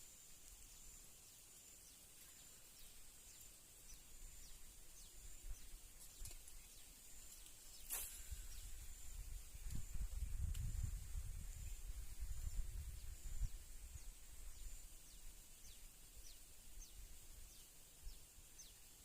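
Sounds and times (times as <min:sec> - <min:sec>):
insects whining: 0:00.0 - 0:19.0
falling bird chirps: 0:02.0 - 0:09.7.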